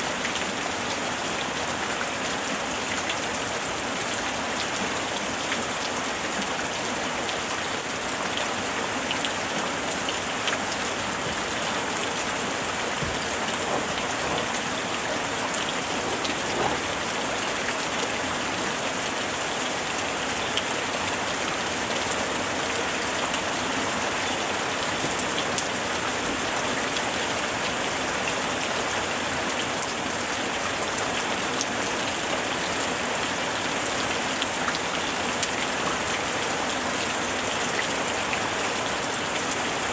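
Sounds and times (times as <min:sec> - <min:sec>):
steady rain hissing: 0:00.0 - 0:39.9
raindrops tapping on surfaces: 0:09.1 - 0:18.4, 0:20.5 - 0:32.8.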